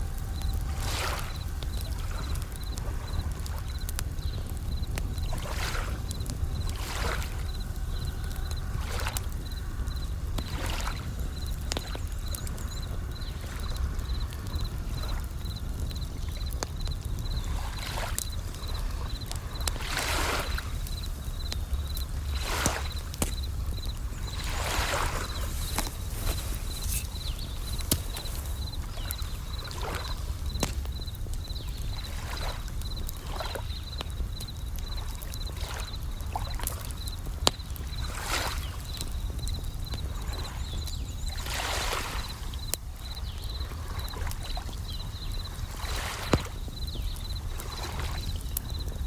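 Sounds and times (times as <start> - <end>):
waves rumbling and swishing: 0.0 - 12.4, 17.4 - 30.8
campfire crackling: 0.0 - 49.0
crickets chirping: 0.0 - 49.0
waves washing: 22.1 - 30.8.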